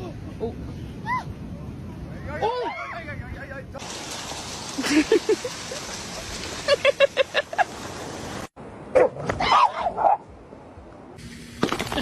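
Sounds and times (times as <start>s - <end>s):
dog yipping and barking: 8.9s - 10.2s.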